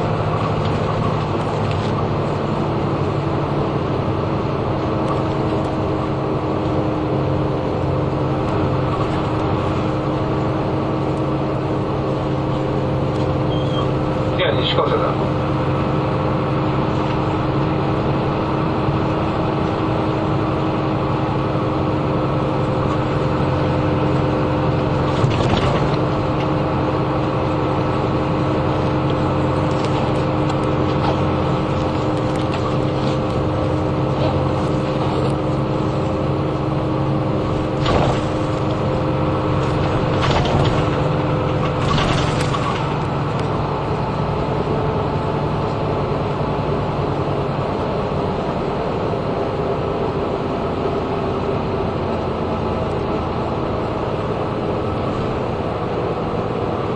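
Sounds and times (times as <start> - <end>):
bus engine and road noise: 0.0 - 56.9
knocks and rattles: 39.7 - 43.0.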